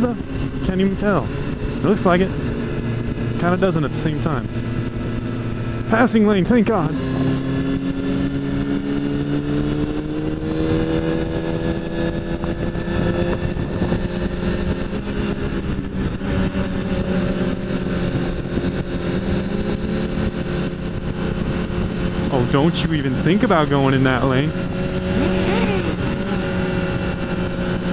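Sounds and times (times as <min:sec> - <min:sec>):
motorcycle engine accelerating: 0:00.0 - 0:27.9
wind and road noise: 0:00.0 - 0:27.9.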